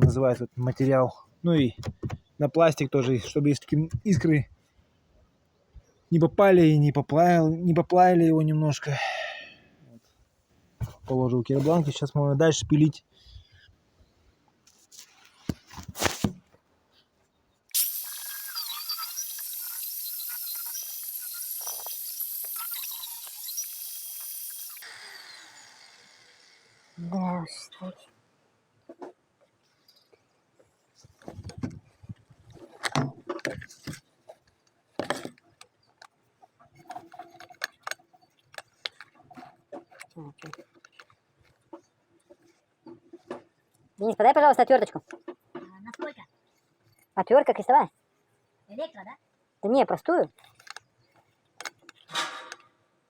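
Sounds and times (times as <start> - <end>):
angle grinder cutting iron: 17.7 - 27.1.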